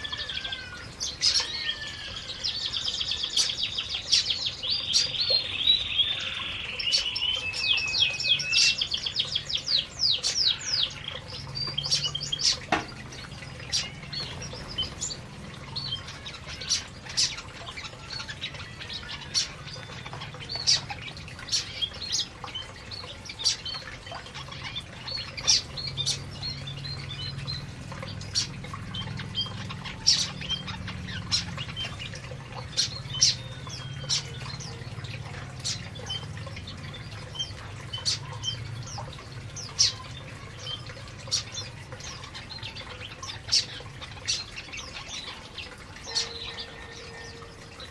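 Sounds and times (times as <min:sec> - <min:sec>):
canaries trilling and chirping: 0:00.0 - 0:47.9.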